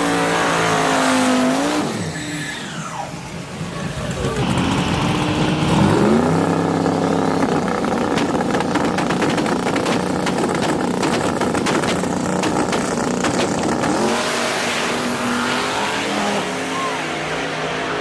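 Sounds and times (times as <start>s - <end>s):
engine revving: 4.0s - 18.0s
rapid sharp crackling: 7.2s - 14.2s.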